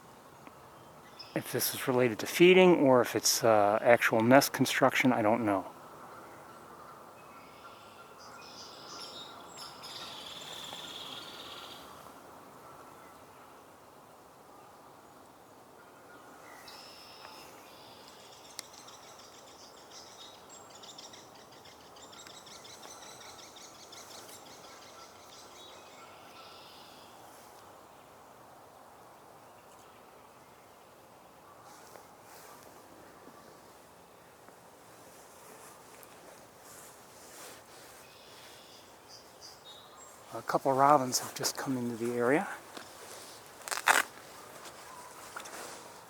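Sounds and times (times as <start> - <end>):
outdoor background hiss: 0.0 - 46.0
birds calling and singing: 5.3 - 12.0, 15.2 - 27.2.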